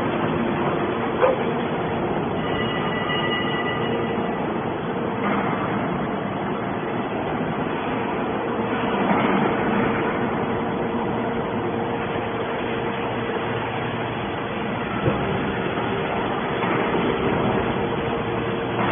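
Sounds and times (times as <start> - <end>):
scrap metal baler running: 7.3 - 18.9.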